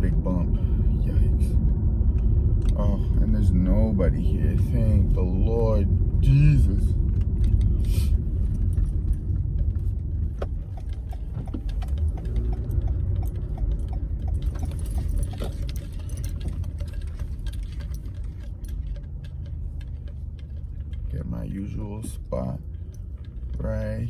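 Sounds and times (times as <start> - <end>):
car road rumble: 0.0 - 24.0
light clicking and rattling: 6.4 - 24.0.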